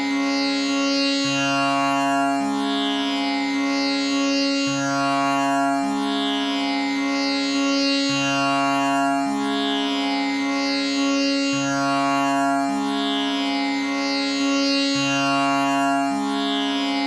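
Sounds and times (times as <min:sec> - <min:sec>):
tanpura drone: 0:00.0 - 0:17.0.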